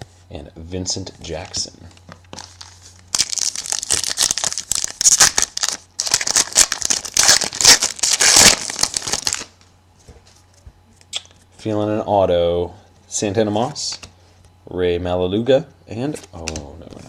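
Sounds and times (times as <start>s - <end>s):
card pack wrapper crinkling and tearing: 2.3s - 9.5s.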